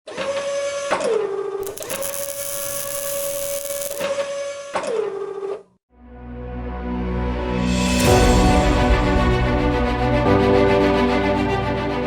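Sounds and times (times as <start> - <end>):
robot arm motors whining: 1.6 - 4.0.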